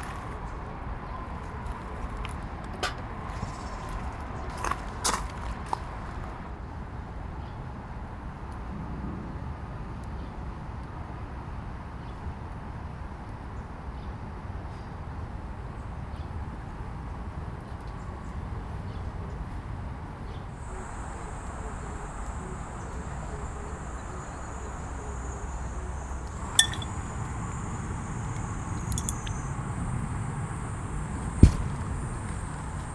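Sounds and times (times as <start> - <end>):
insect high-pitched drone: 20.6 - 31.0
sharp ringing clink: 26.3 - 27.0, 28.8 - 29.4.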